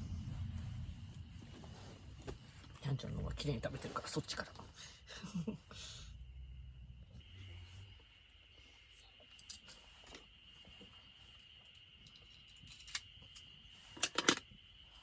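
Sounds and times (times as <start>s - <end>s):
faint high-pitched tone: 6.8s - 15.0s.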